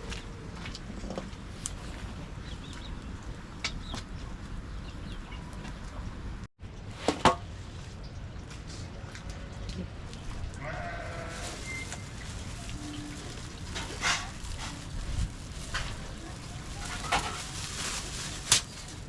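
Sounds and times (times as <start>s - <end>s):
sheep bleating: 10.6s - 11.7s.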